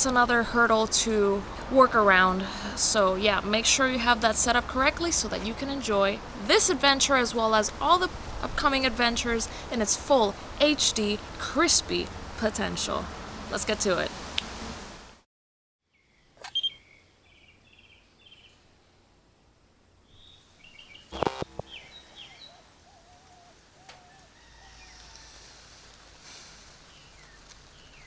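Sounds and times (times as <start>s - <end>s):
birds chirping: 16.4s - 18.6s, 20.0s - 25.2s, 26.8s - 28.0s
sharp clicks: 21.1s - 21.7s.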